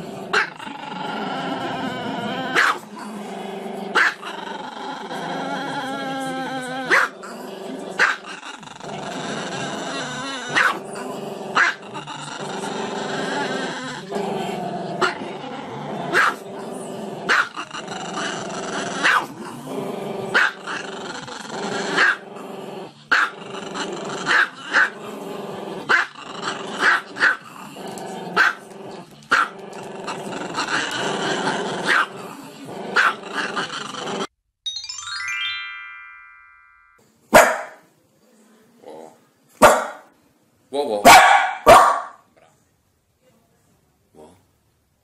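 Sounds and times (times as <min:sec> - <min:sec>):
dog growling: 0:00.0 - 0:34.3
dog barking: 0:02.6 - 0:02.8, 0:04.0 - 0:04.2, 0:06.9 - 0:07.1, 0:10.5 - 0:10.8, 0:11.6 - 0:11.8, 0:16.1 - 0:16.4, 0:17.3 - 0:17.5, 0:19.0 - 0:19.3, 0:23.1 - 0:23.3, 0:26.8 - 0:27.4, 0:28.4 - 0:28.6, 0:31.9 - 0:32.1, 0:33.0 - 0:33.2, 0:37.3 - 0:37.8, 0:39.6 - 0:40.1, 0:41.0 - 0:42.3.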